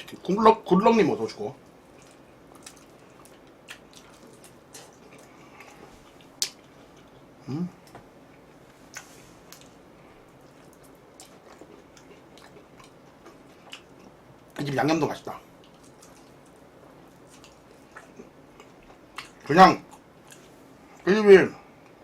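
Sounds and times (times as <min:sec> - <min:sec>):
person humming: 0:07.4 - 0:07.8.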